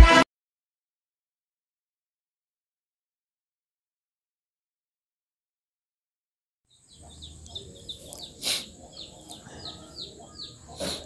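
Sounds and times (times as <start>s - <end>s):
small birds chirping: 6.7s - 11.0s.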